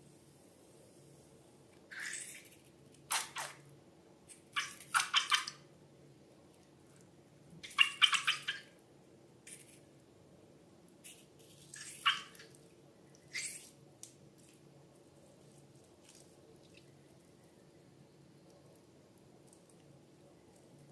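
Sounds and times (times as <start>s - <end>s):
slime squelching and dripping: 15.4s - 16.9s.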